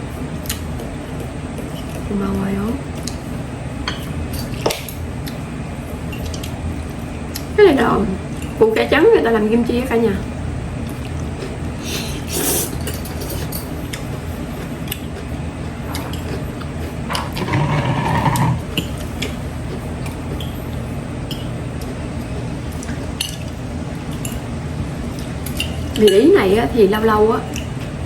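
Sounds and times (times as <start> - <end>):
cutlery clinking against a plate: 12.7 - 14.1.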